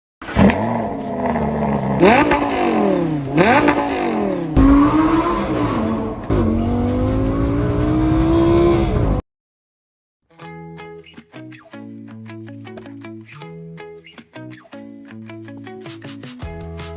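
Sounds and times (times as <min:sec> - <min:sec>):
sports car engine revving: 0:00.2 - 0:09.2.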